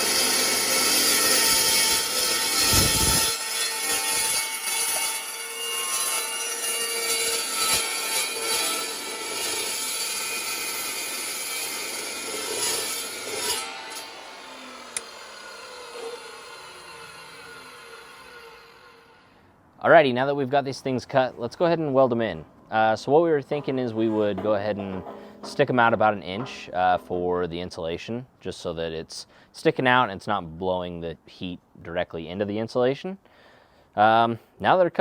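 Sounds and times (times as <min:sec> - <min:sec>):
power saw cutting metal pipe: 0:00.0 - 0:19.3, 0:23.0 - 0:28.0.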